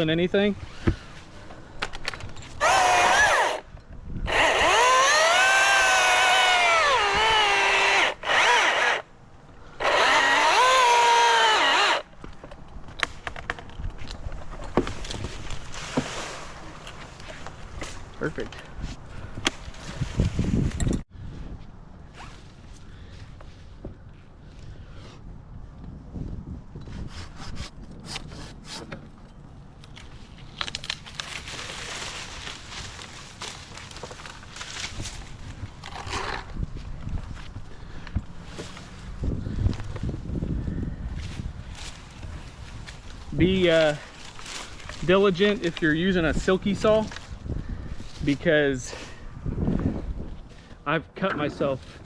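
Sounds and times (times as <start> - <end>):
chainsaw motor whine: 2.6 - 3.6, 4.2 - 9.1, 9.8 - 12.1
pull saw cutting branch: 2.6 - 9.1, 9.8 - 12.1
wood cracking and snapping: 29.9 - 36.6.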